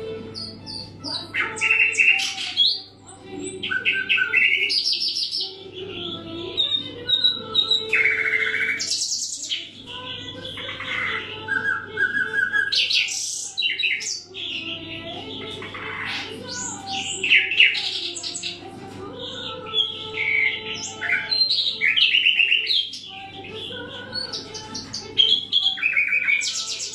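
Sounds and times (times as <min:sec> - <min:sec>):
nightingale singing: 0:19.7 - 0:23.2, 0:24.2 - 0:26.9.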